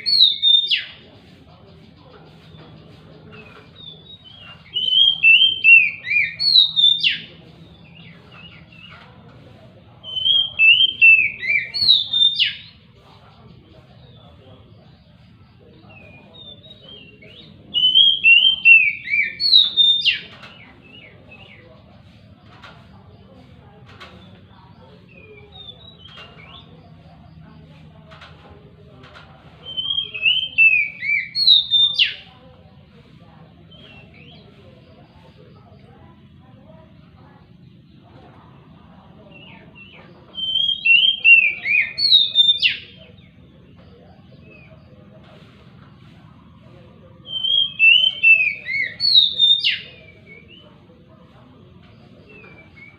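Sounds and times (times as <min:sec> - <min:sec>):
bird whistling song: 0:00.0 - 0:01.0, 0:03.3 - 0:09.0, 0:10.0 - 0:12.8, 0:15.8 - 0:21.6, 0:24.2 - 0:27.1, 0:29.6 - 0:32.3, 0:33.7 - 0:34.6, 0:39.2 - 0:44.9, 0:47.2 - 0:50.8, 0:52.0 - 0:52.9.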